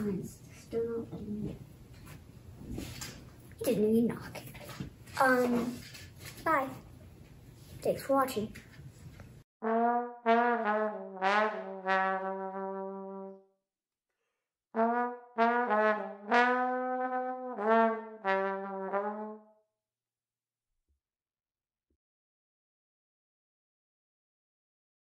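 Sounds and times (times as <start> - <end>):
solo trombone playing: 9.6 - 13.5, 14.8 - 19.5.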